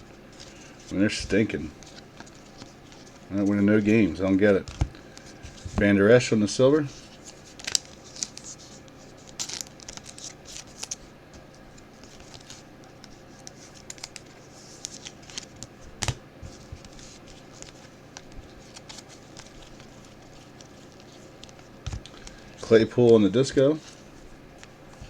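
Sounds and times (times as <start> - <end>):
trading cards rustling: 0.1 - 25.0.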